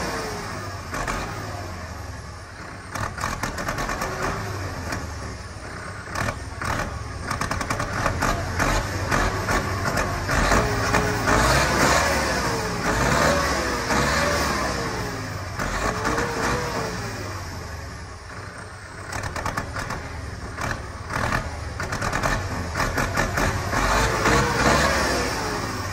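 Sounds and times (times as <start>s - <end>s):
tractor diesel engine revving: 0.0s - 25.9s
engine sharp knocks: 19.1s - 24.8s.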